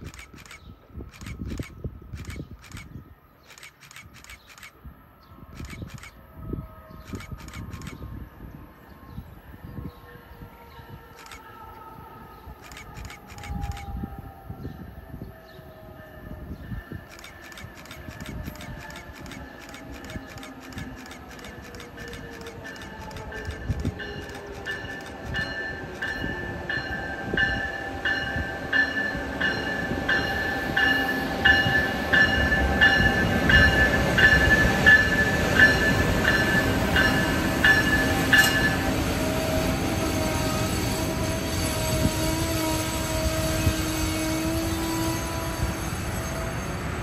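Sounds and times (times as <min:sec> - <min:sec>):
train rolling by: 0:15.8 - 0:47.0
locomotive bell ringing: 0:16.8 - 0:39.4.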